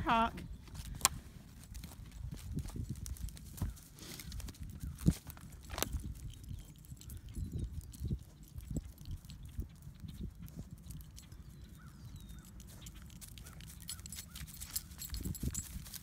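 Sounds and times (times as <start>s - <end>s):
footsteps crunching on frozen ground: 0.6s - 6.4s.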